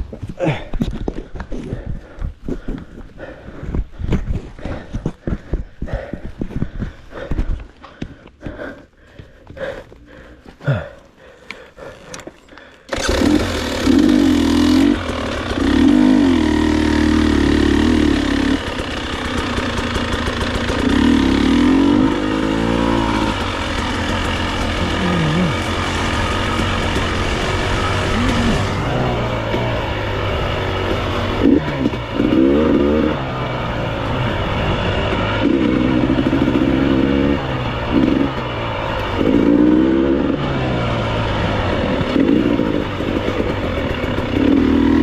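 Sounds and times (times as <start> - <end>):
motorcycle engine revving: 12.9 - 45.0.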